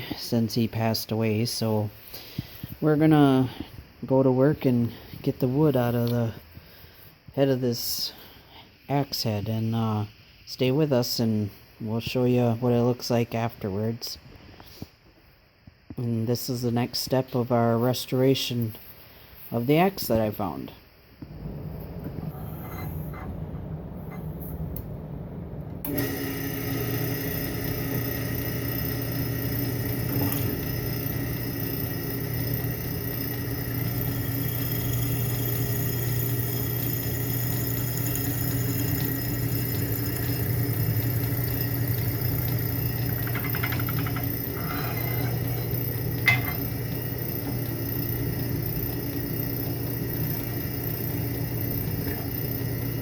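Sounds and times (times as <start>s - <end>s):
electric drill boring wood: 25.8s - 53.0s.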